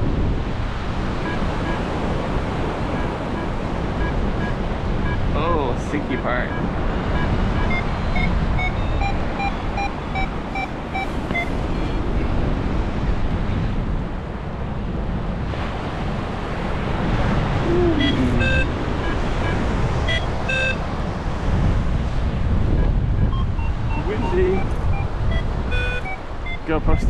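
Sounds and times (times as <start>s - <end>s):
wind buffeting microphone: 0.0s - 27.0s
variometer high beeps: 1.2s - 2.0s, 2.8s - 12.3s, 17.7s - 20.9s, 22.7s - 27.0s.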